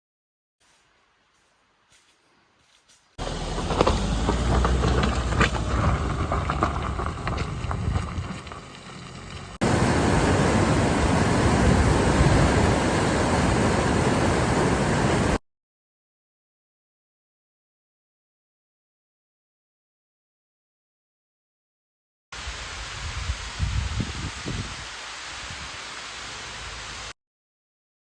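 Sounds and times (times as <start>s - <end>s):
vehicle engine rumbling: 3.2s - 13.8s
steady rushing noise: 9.6s - 15.4s.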